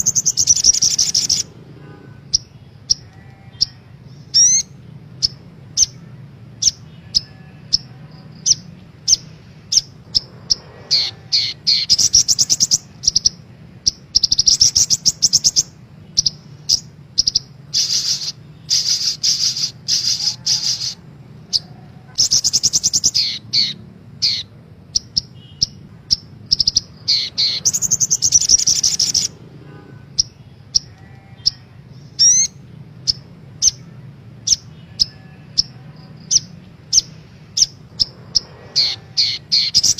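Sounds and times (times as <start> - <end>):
bird chirps and trills: 0.0 - 39.9.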